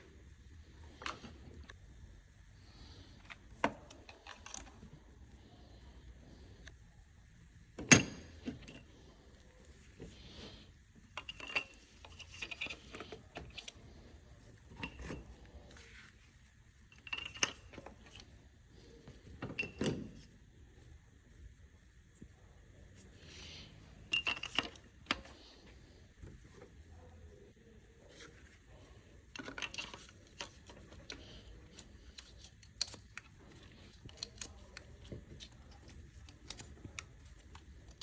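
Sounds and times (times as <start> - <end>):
metal tools clinking and knocking: 11.2 - 13.2, 24.1 - 24.8.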